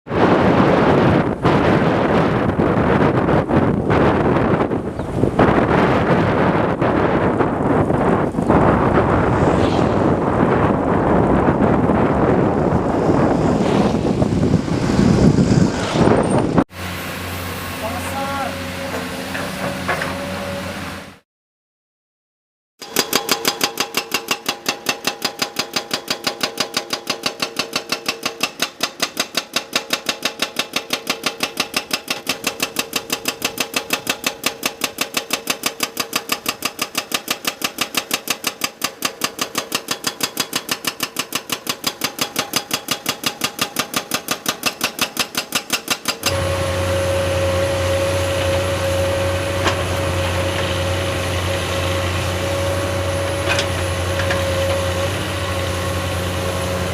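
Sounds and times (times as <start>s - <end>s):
engine humming steadily: 7.4s - 21.2s, 30.8s - 56.9s.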